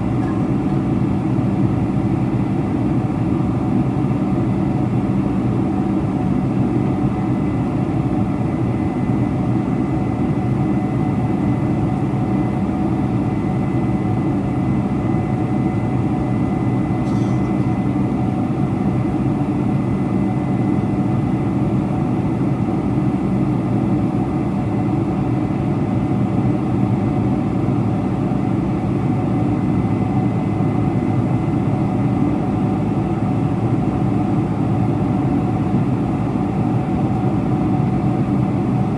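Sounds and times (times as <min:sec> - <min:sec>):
airplane cabin engine rumble: 0:00.0 - 0:23.2.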